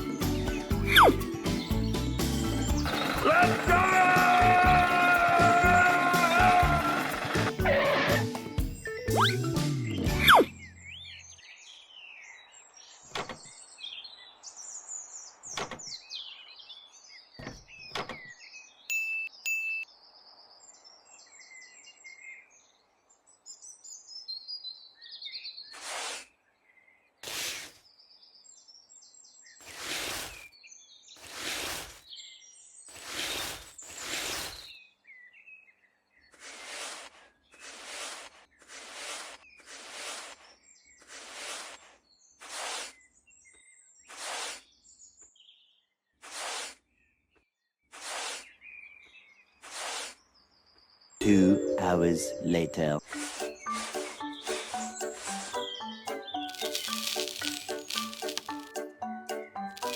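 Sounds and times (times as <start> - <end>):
birds chirping: 0.0 - 19.8, 51.2 - 59.9.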